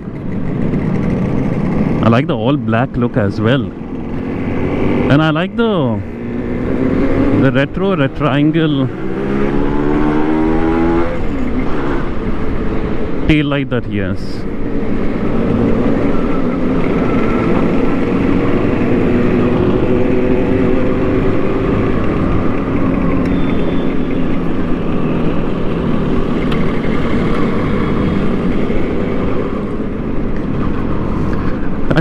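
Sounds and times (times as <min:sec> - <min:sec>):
two-stroke motorcycle engine running: 0:00.0 - 0:02.7, 0:14.4 - 0:31.2.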